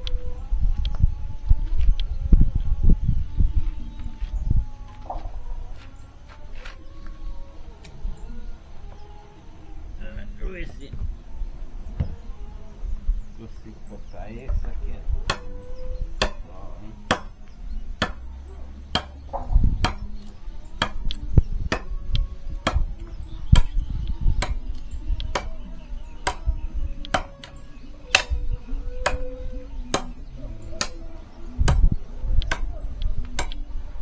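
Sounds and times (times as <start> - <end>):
firewood being chopped: 15.2 - 15.5, 16.2 - 16.5, 17.1 - 17.4, 18.0 - 18.3, 18.9 - 22.0, 22.6 - 23.8, 24.4 - 25.6, 26.3 - 26.5, 27.1 - 27.5, 28.1 - 28.4, 29.0 - 29.2, 29.9 - 30.2, 30.8 - 31.0, 31.6 - 32.7, 33.4 - 33.6.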